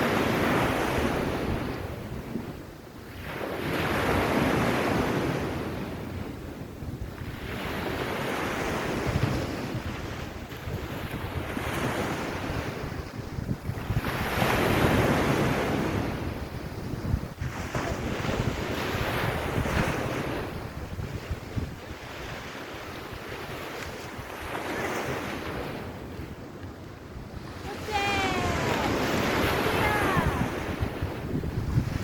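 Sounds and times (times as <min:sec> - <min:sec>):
wind buffeting microphone: 0:00.0 - 0:32.0
sea waves washing onto beach: 0:07.1 - 0:32.0.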